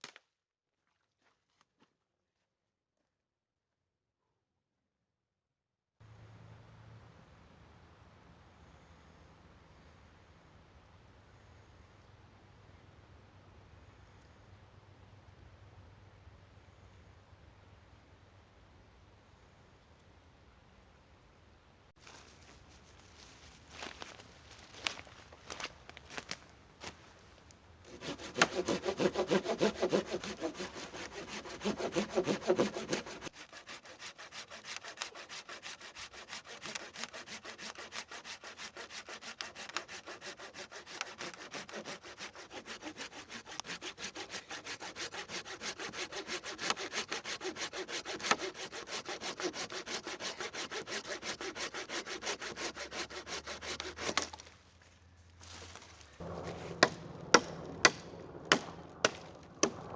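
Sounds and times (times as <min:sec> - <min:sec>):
hand saw cutting wood: 0:27.8 - 0:54.5, 0:55.6 - 0:59.8.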